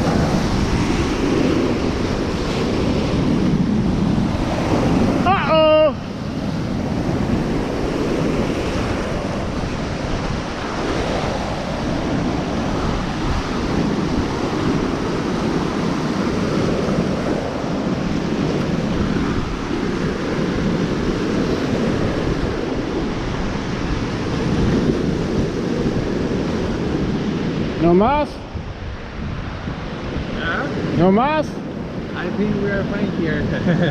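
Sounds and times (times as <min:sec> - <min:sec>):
surf breaking on shore: 0:00.0 - 0:33.9
wind on microphone: 0:00.0 - 0:33.9.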